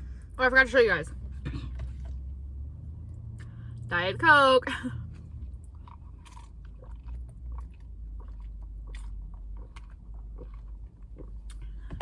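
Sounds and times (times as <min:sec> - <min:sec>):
steady low hum: 0:00.0 - 0:12.0
chewing crunchy salad: 0:05.0 - 0:11.9.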